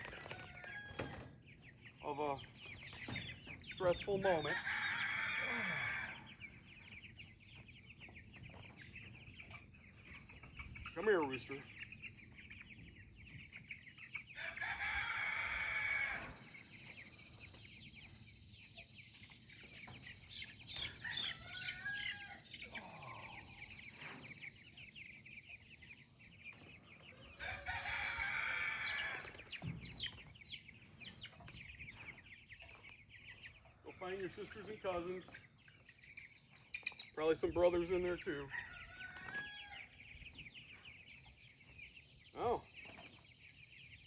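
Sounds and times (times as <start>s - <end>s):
wings flapping: 0.0s - 1.3s, 27.7s - 29.6s
chickens squawking: 0.0s - 18.2s, 19.6s - 44.0s
chickens cheeping and clucking: 0.0s - 44.0s.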